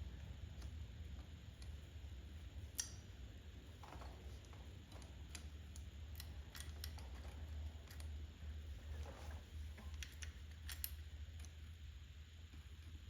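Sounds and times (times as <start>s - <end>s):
low steady hum: 0.0s - 13.0s
small metal parts clicking: 2.7s - 3.1s, 4.4s - 8.2s, 9.8s - 11.6s.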